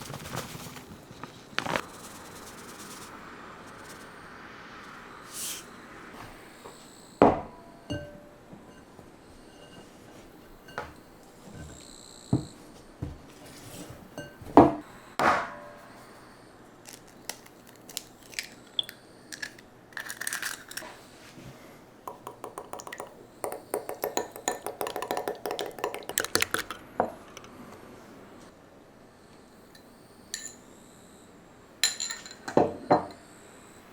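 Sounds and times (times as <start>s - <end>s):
utensils and dishes clinking: 16.9s - 21.0s, 22.1s - 27.6s, 30.4s - 30.6s, 31.8s - 33.2s
utensil clicking against bowl: 22.1s - 27.6s.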